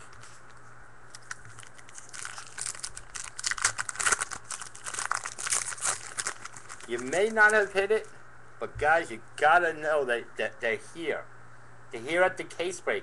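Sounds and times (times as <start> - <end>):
foil wrappers crinkling and tearing: 1.1 - 7.8.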